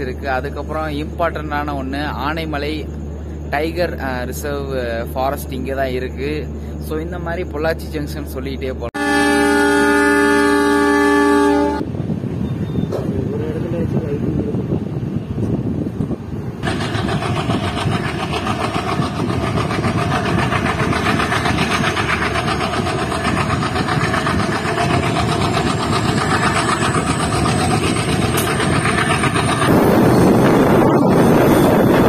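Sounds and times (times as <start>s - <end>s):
wind rushing on microphone: 11.6s - 32.0s
train wheels clattering: 16.6s - 32.0s.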